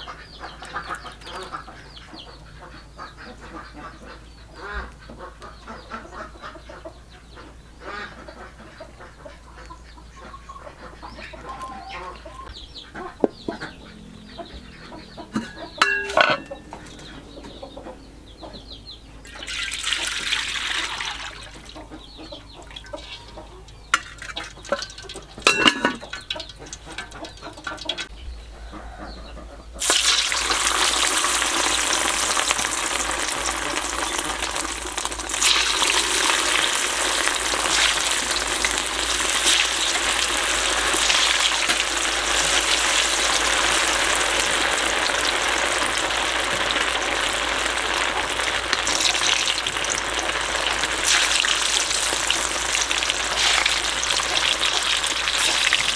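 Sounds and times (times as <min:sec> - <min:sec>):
utensils clattering: 0:15.3 - 0:17.1, 0:22.8 - 0:28.1
meatballs sizzling in hot oil: 0:19.3 - 0:21.8, 0:22.7 - 0:28.0, 0:29.8 - 0:55.9.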